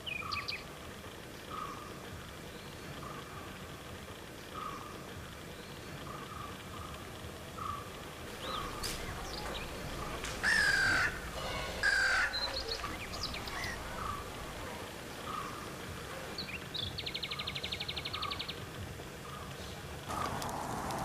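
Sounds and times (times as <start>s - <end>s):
bird chirps: 0.0s - 0.7s, 7.6s - 20.3s
harsh falling bird calls: 0.0s - 3.6s, 4.3s - 20.9s
faint repeated bird notes: 0.0s - 20.5s.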